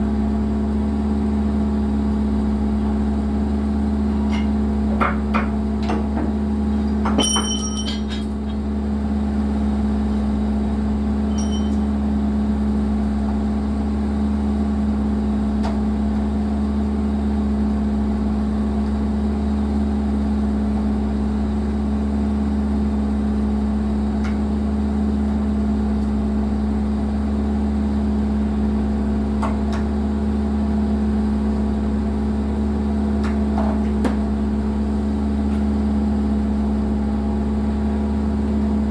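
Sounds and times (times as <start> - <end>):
excavator diesel engine running: 0.0 - 17.7.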